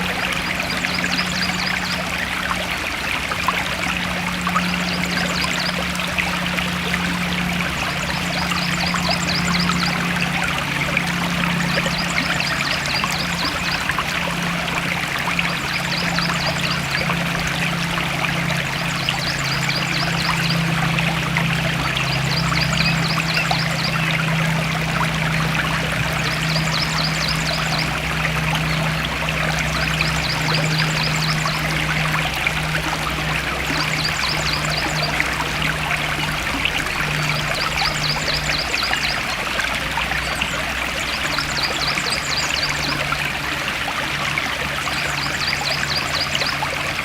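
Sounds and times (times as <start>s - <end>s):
low steady hum: 0.0s - 47.0s
stream water flowing: 0.0s - 47.0s.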